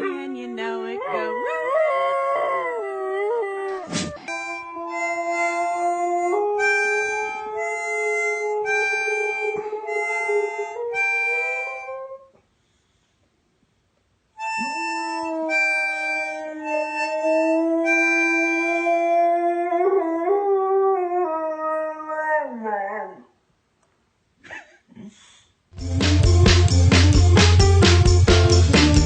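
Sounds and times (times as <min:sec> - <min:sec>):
harmonica playing chords: 0:04.2 - 0:12.0, 0:14.4 - 0:18.9, 0:25.8 - 0:29.0.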